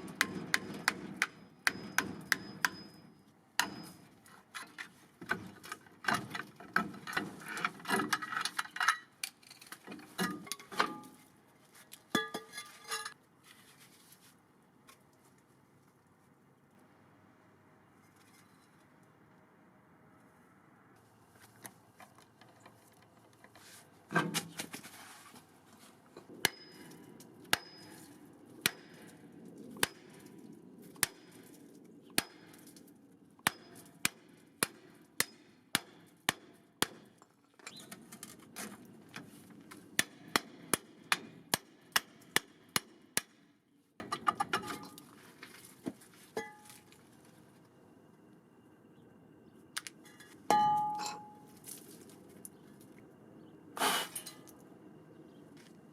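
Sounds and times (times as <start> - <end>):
hammer striking metal: 0.1 - 4.0, 26.4 - 26.8.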